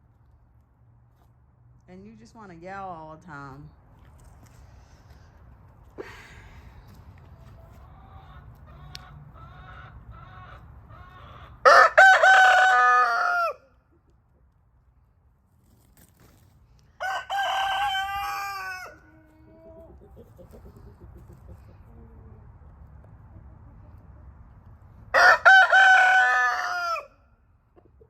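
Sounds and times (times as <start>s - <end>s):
soft clucks: 7.2s - 11.5s, 19.5s - 24.4s
rooster crowing: 11.6s - 13.7s, 17.0s - 19.2s, 25.1s - 27.2s.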